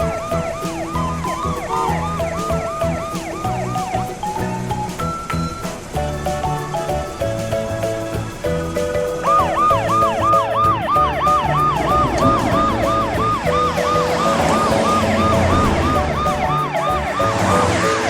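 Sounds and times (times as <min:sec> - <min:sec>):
fast siren sound effect: 0:00.0 - 0:04.9, 0:09.2 - 0:18.0
cartoon background music: 0:00.0 - 0:18.0.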